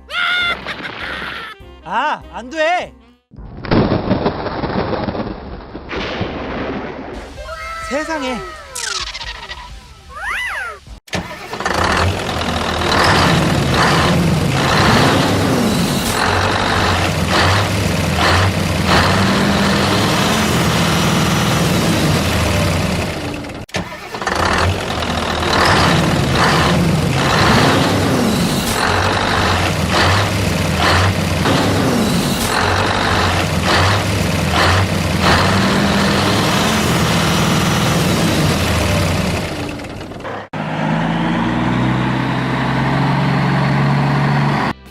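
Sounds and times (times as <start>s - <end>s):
heavy vehicle engine running: 11.2s - 44.9s.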